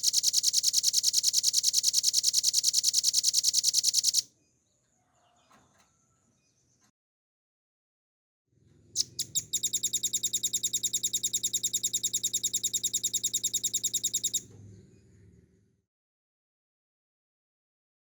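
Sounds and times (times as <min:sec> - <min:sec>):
bird song with high trill: 0:09.0 - 0:14.4.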